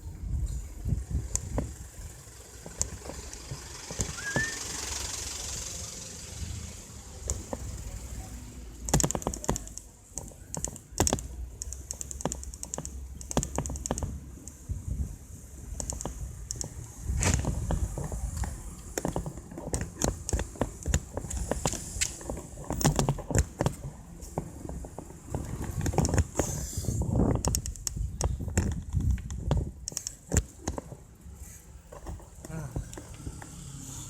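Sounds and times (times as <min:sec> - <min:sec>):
steady low rumble: 0:00.0 - 0:03.9
mountain bike ticking and rattling: 0:00.0 - 0:34.0
rapid clicks: 0:08.8 - 0:14.6.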